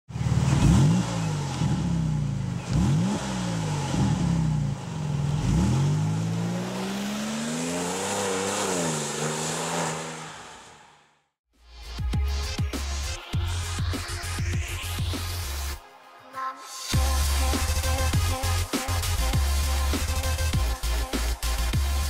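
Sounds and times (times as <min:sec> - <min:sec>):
car engine revving: 0:00.1 - 0:11.3.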